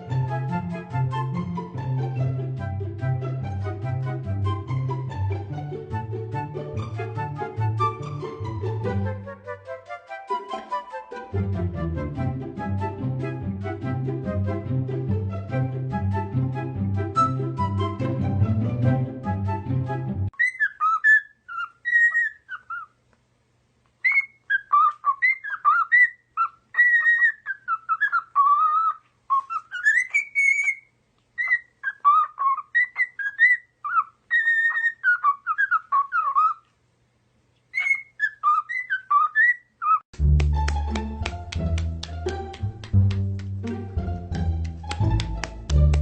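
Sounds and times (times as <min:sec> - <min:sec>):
backing music: 0:00.0 - 0:20.3, 0:40.2 - 0:46.0
bird whistling and chirping: 0:20.4 - 0:22.9, 0:24.0 - 0:36.6, 0:37.7 - 0:40.0.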